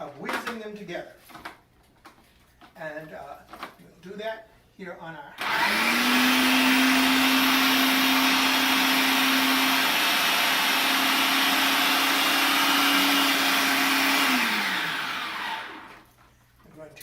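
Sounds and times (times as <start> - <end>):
electric blender running: 5.4 - 16.1.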